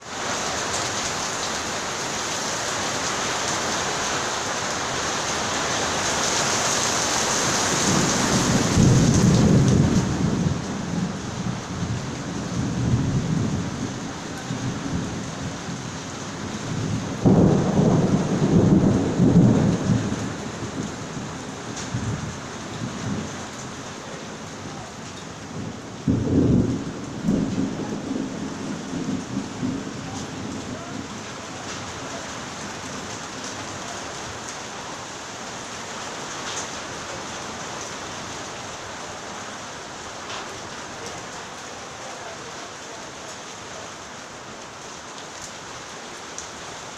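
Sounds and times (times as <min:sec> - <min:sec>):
rain falling: 0:00.0 - 0:46.9
rolling thunder: 0:07.5 - 0:23.8, 0:25.4 - 0:32.9.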